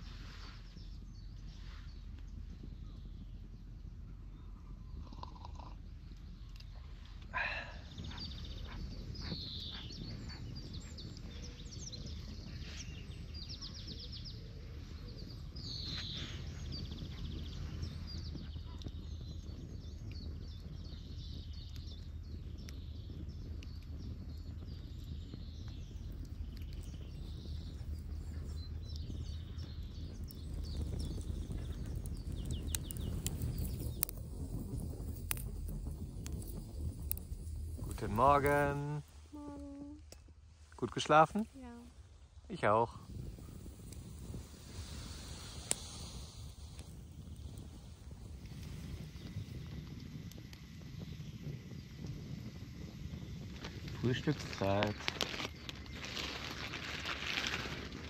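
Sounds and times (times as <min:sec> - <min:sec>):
low wind rumble: 0:00.0 - 0:58.0
wild birds chirping and trilling: 0:04.3 - 0:37.2.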